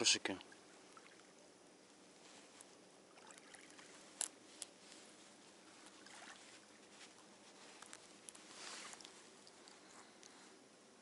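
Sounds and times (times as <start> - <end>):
low steady hiss: 0.0 - 11.0
fishing tackle ticks and rustles: 3.6 - 10.3.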